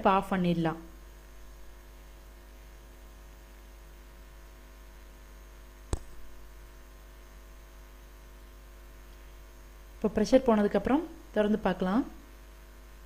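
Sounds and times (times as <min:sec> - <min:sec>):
low electrical hum: 0:00.0 - 0:13.0
sharp click: 0:05.9 - 0:06.4.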